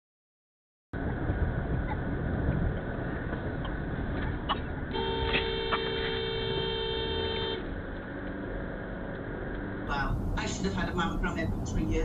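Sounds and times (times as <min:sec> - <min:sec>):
car road noise: 0:01.0 - 0:12.0
two-tone car horn blast: 0:04.9 - 0:07.7.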